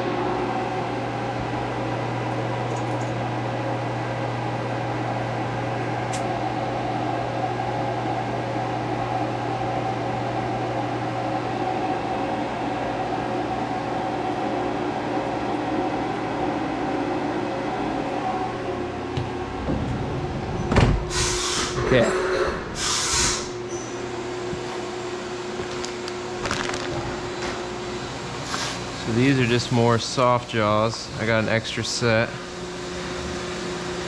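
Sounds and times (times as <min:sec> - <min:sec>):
cnc mill humming: 0:00.0 - 0:34.0.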